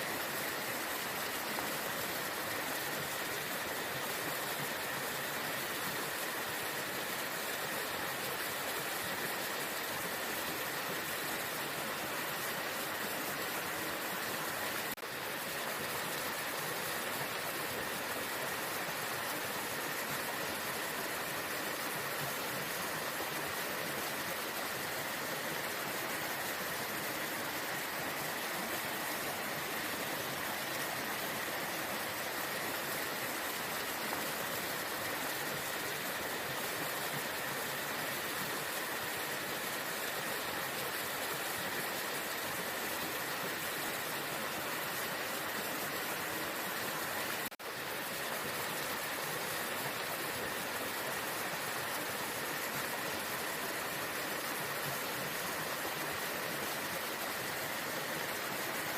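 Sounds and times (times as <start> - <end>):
waterfall roaring: 0.0 - 58.9.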